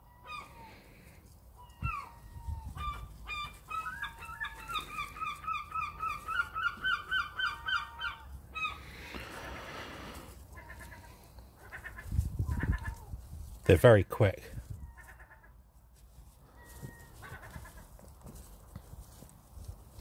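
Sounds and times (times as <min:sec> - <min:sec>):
birds calling rapidly: 0:01.6 - 0:13.2.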